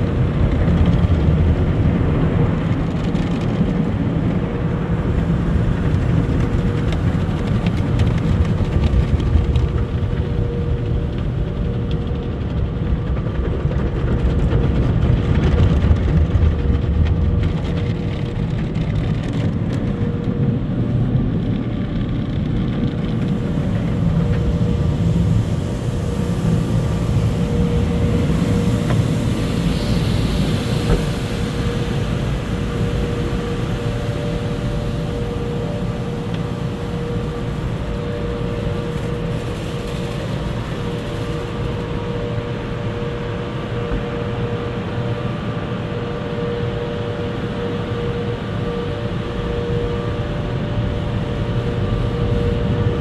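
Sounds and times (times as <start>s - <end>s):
car wash machinery rumble and hiss: 0.0s - 53.0s.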